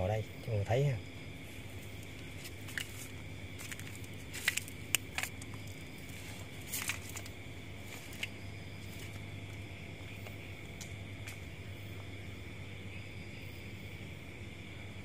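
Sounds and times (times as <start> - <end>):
background hum: 0.0 - 15.0
crackles and rustles: 1.4 - 11.5.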